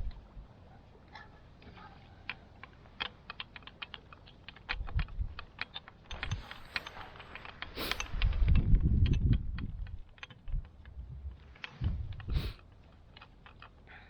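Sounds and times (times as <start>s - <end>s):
small clicks and taps: 1.1s - 14.0s
wind gusts on microphone: 6.1s - 12.6s.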